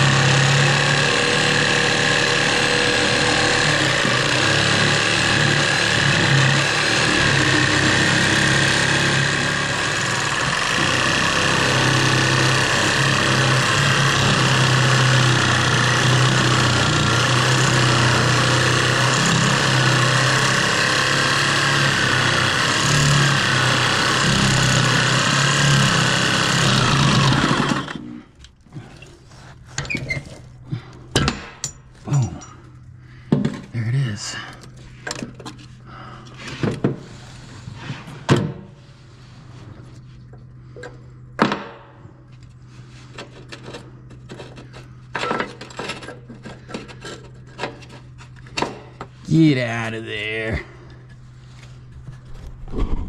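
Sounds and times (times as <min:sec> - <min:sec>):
power tool cutting bolt: 0:00.0 - 0:28.2.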